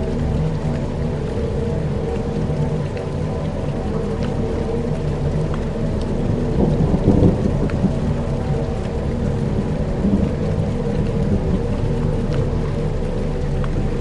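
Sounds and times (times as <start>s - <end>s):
faint patter of ticks: 0.0s - 14.0s
low droning pad: 0.0s - 14.0s
thunder-like rumble: 0.0s - 14.0s.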